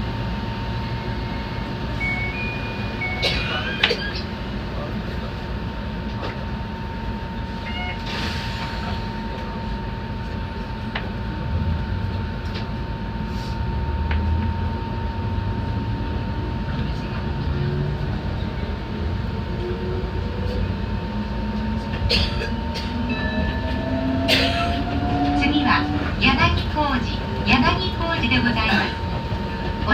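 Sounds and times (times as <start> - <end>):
train wheels and motors rumbling: 0.0 - 29.9
high hum: 0.4 - 4.2.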